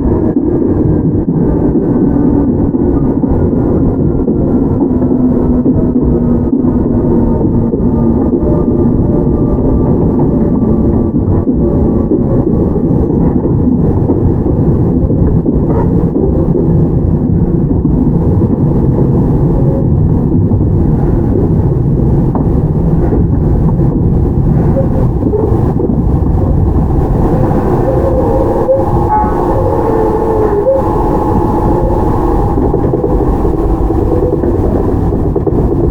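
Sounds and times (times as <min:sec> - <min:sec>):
train wheels rumbling on rails: 0:00.0 - 0:35.9
faint high tones: 0:27.1 - 0:35.1.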